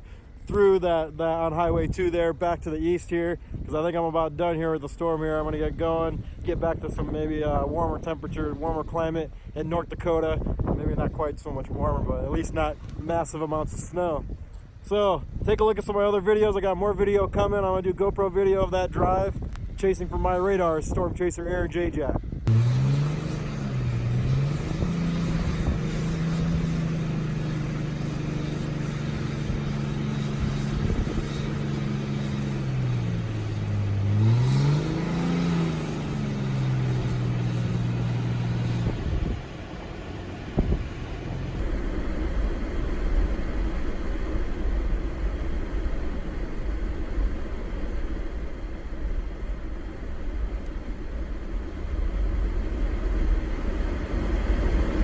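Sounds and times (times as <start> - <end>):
low rumble with hiss: 0.0 - 55.0
car engine revving: 22.4 - 50.5.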